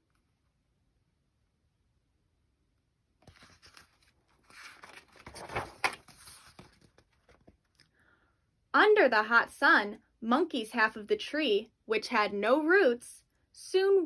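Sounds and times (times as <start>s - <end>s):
book page rustling: 3.2s - 7.8s.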